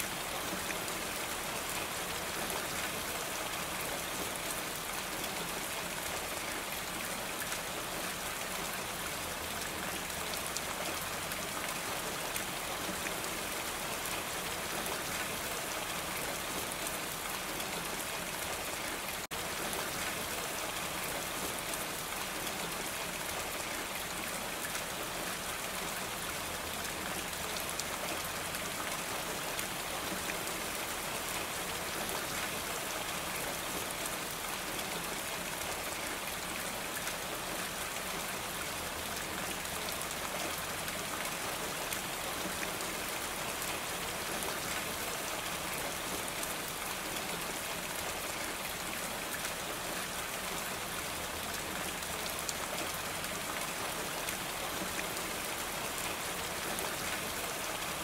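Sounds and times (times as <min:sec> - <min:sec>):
rain falling on a roof: 0:00.0 - 0:58.0.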